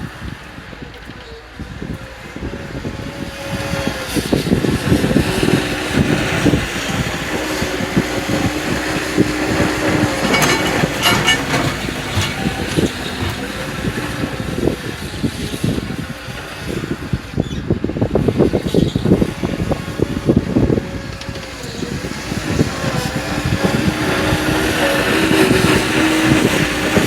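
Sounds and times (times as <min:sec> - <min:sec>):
tractor engine running: 0:04.1 - 0:27.0
clatter: 0:08.2 - 0:15.8.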